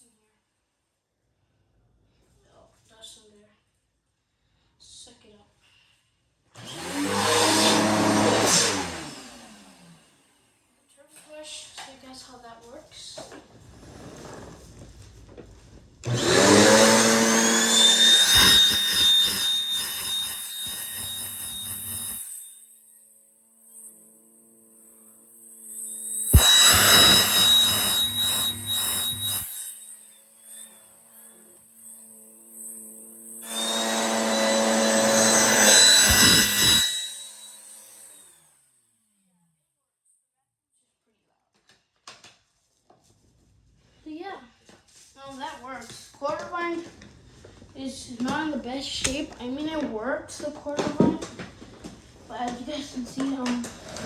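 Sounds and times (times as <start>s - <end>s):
vacuum cleaner motor whine: 6.6s - 10.2s, 16.0s - 38.4s.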